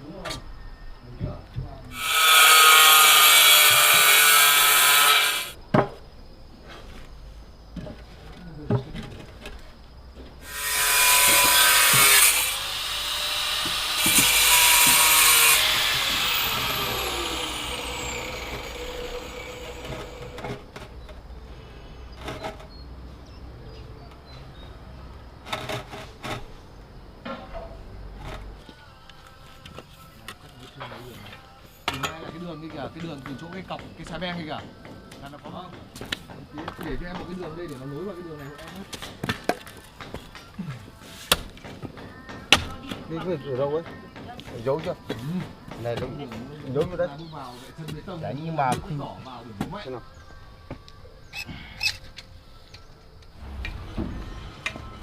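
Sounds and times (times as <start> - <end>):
power tool cutting: 2.0 - 5.5, 10.4 - 20.6.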